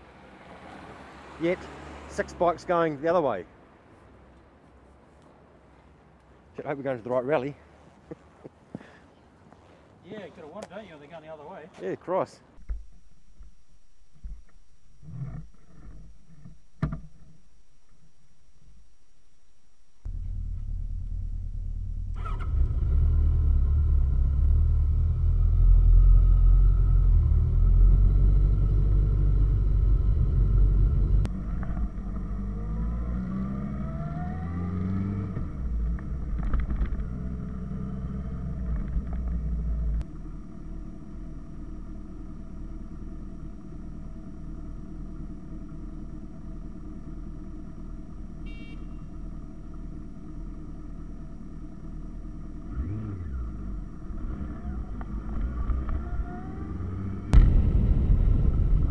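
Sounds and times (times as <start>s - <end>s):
motorcycle engine revving: 20.1s - 58.9s.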